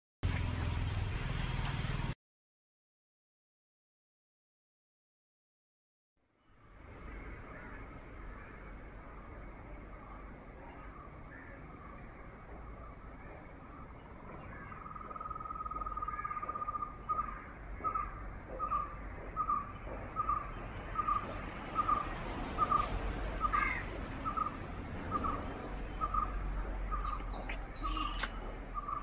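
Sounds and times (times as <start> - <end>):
bird calling with trilled notes: 13.3 - 29.0
sharp click: 28.2 - 28.4.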